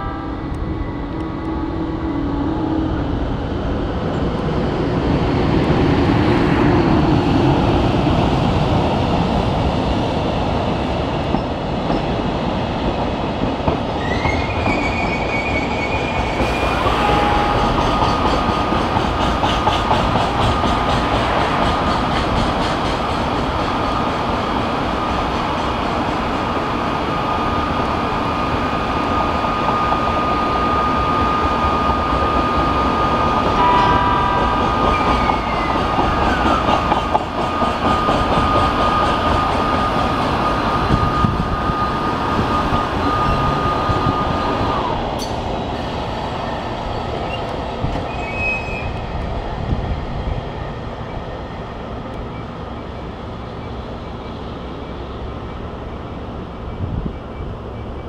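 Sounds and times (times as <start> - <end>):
train wheels rolling on rails: 0.5 - 58.0
high squeal: 14.0 - 18.7, 29.4 - 36.9, 37.5 - 45.4, 46.4 - 49.2.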